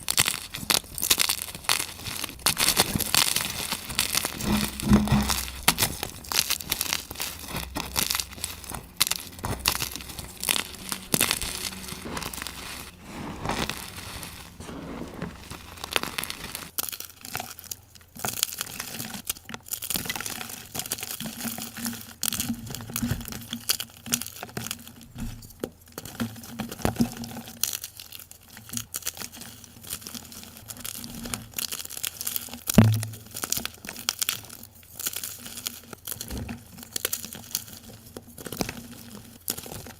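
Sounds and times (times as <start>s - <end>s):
chalk crushing and crunching: 0.0s - 25.1s, 25.9s - 39.9s.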